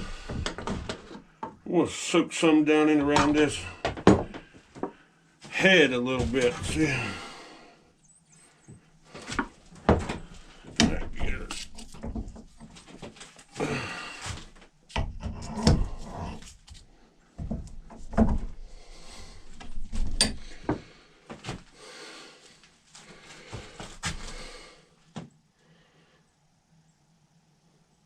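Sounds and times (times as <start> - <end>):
handling knocks and clicks: 9.2 - 13.4.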